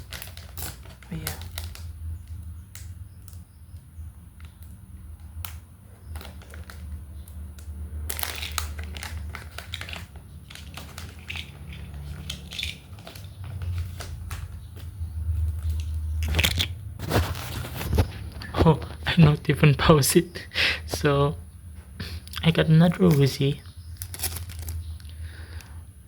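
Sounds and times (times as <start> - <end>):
package wrapping crinkling: 0.0 - 3.7, 4.4 - 19.5, 22.9 - 25.2.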